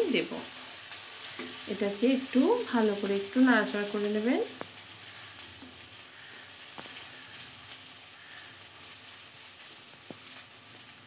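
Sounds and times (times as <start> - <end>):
onions sizzling in hot oil: 0.0 - 11.0
wooden spatula stirring: 0.6 - 1.8.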